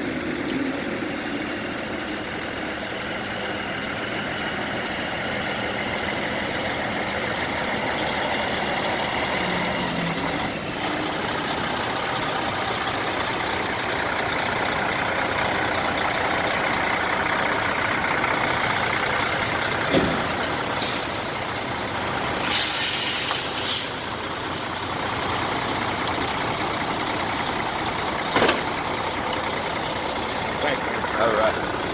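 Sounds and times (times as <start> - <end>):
truck engine running: 0.0 - 31.9
short hisses: 22.4 - 24.3.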